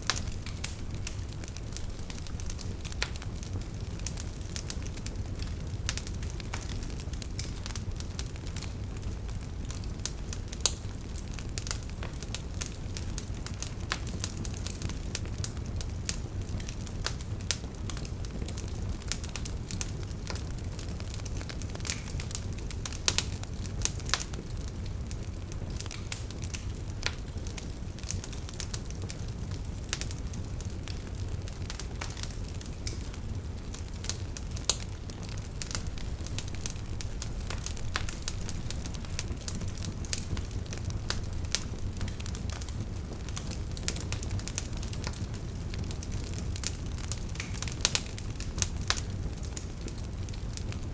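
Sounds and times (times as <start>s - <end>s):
firewood popping and snapping: 0.0s - 8.7s, 16.6s - 24.3s, 30.9s - 50.7s
low rumble of flames: 0.0s - 50.9s.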